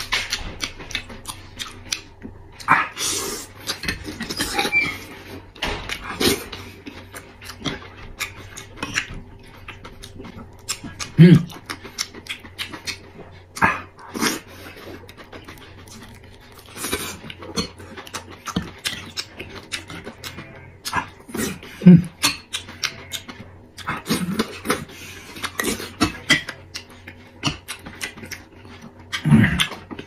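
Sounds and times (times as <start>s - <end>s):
person chewing wetly: 0.0s - 30.0s
low throat sounds: 10.8s - 11.6s, 20.8s - 22.3s.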